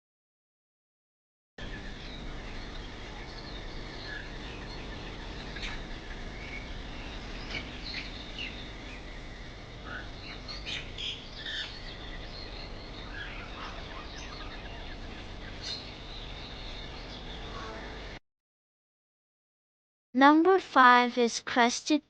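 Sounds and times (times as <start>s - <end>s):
birds chirping and calling: 1.6s - 18.2s
steady background hiss: 1.6s - 18.2s.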